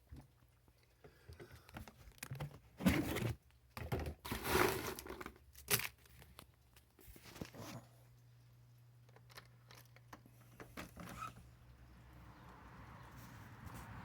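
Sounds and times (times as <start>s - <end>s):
rustling and crinkling handling: 0.1s - 8.3s.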